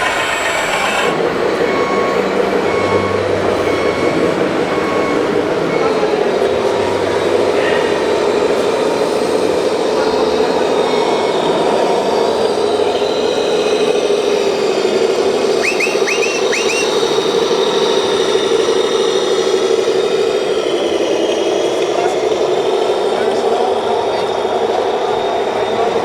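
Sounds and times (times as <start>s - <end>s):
short rising chirps: 10.9s - 21.0s.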